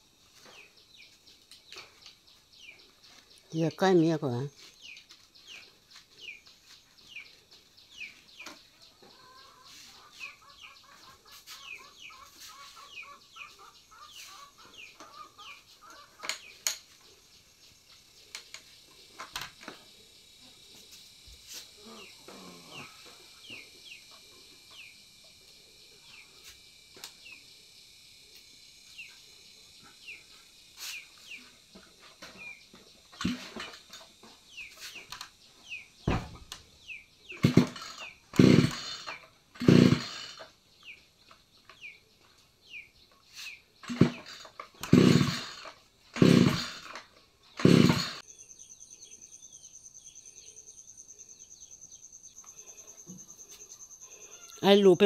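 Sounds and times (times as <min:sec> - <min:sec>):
birds chirping: 0:00.4 - 0:20.4, 0:21.1 - 0:25.1, 0:28.8 - 0:55.0
recoil starter cord pull: 0:33.2 - 0:34.0, 0:37.4 - 0:40.5, 0:43.8 - 0:48.2.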